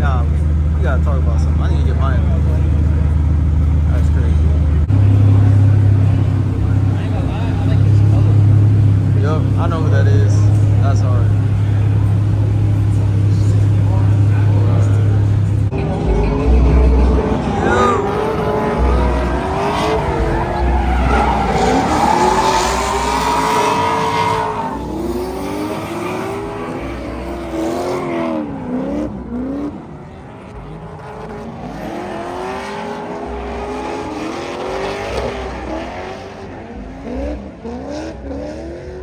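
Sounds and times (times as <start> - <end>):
car engines revving: 0.0 - 39.0
tyre squeal: 18.9 - 25.4.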